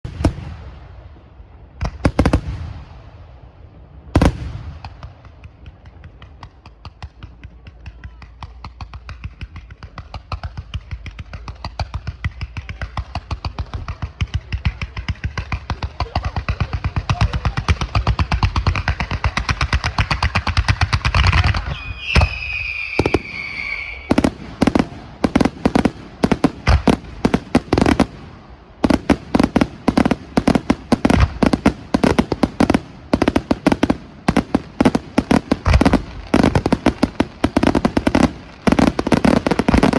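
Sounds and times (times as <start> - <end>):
loud firework booms: 0.0 - 1.1, 1.8 - 3.3, 4.1 - 6.2, 21.0 - 39.9
fireworks bangs: 0.0 - 3.5, 4.1 - 39.9
falling firework whistle: 21.5 - 24.8.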